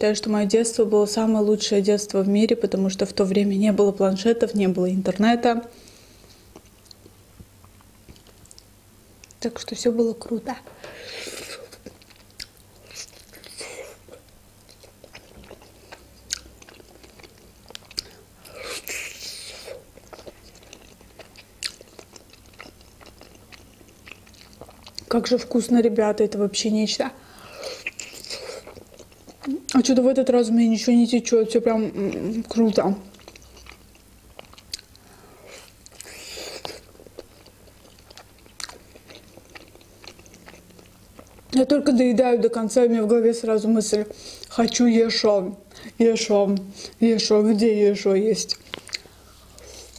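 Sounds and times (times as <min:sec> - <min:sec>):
biting and chewing dumpling: 0:11.2 - 0:25.1, 0:27.7 - 0:29.8, 0:33.1 - 0:41.6.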